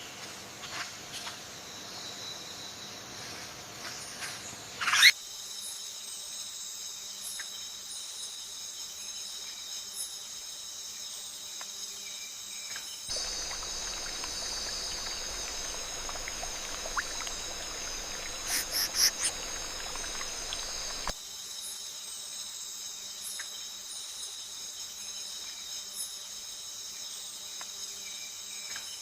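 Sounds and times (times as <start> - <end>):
broad hiss: 13.1 - 21.2
high-pitched insect chorus: 13.1 - 21.2.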